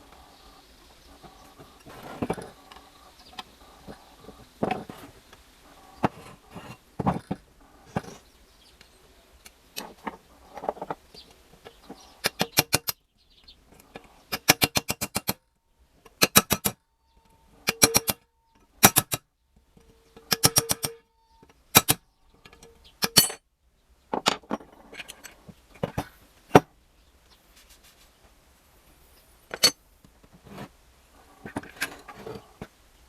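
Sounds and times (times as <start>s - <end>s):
metal tools clinking on engine parts: 17.6s - 19.2s, 19.8s - 23.4s, 24.2s - 26.1s, 29.5s - 29.8s.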